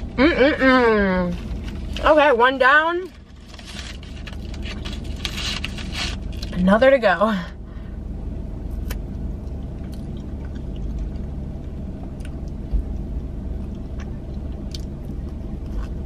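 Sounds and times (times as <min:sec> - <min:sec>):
car cabin hum: 0:00.0 - 0:16.0
person chewing food: 0:09.4 - 0:12.9, 0:13.6 - 0:16.0.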